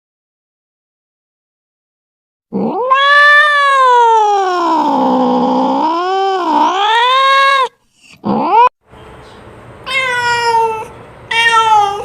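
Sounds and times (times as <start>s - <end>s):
cat meowing: 2.6s - 8.7s, 9.9s - 12.0s
cat yowling: 2.6s - 8.7s, 9.9s - 12.0s.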